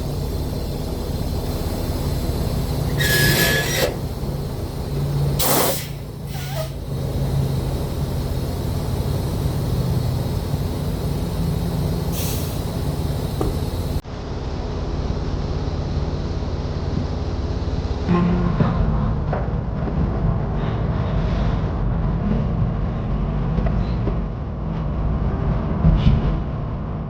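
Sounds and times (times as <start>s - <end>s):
air brake hissing: 0.0s - 14.0s
diesel truck engine running: 0.0s - 25.9s.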